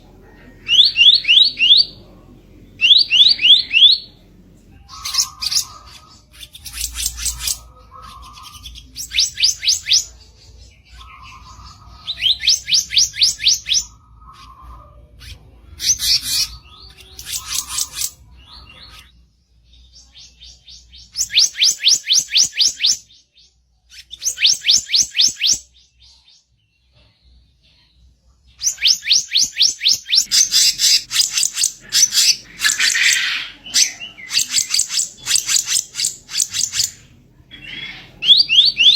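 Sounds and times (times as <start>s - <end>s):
songbird singing harsh song: 0.5s - 19.0s, 28.5s - 38.9s.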